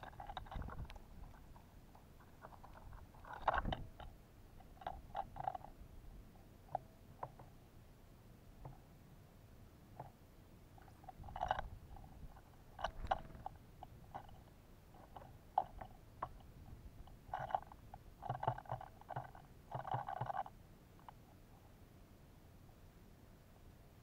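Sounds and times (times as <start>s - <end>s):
birds pecking at feeder: 0.0s - 5.8s, 10.0s - 21.6s.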